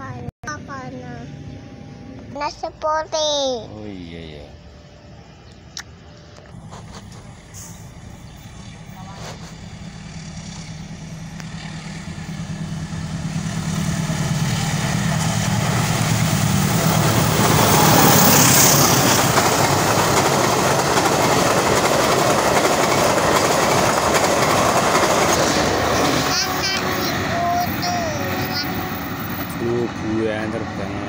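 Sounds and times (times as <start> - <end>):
diesel locomotive engine drone: 0.0 - 31.0
train wheels rushing on rails: 6.5 - 31.0.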